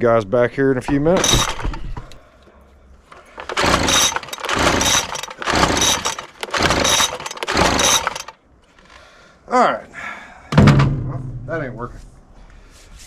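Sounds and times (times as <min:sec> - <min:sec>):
recoil starter rope pulls: 0:00.9 - 0:02.2, 0:03.0 - 0:09.0.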